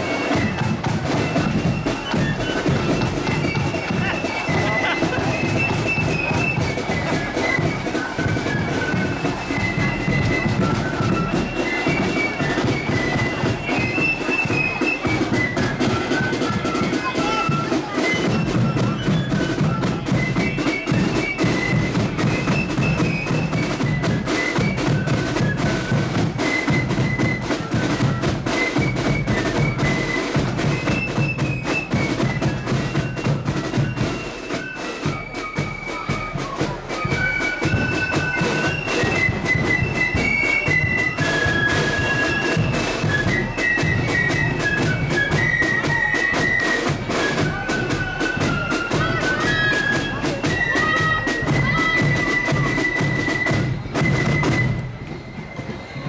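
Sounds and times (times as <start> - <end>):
snare and bass drumming: 0.0 - 55.2
high flute melody: 0.0 - 56.0
marching band playing: 0.0 - 56.0.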